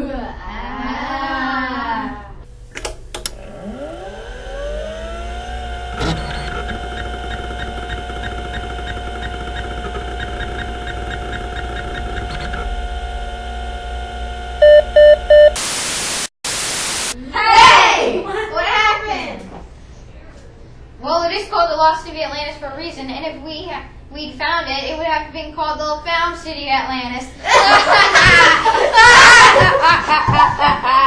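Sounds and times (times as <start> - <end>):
loud static burst: 2.6 - 17.2
short loud beeps: 14.5 - 17.2.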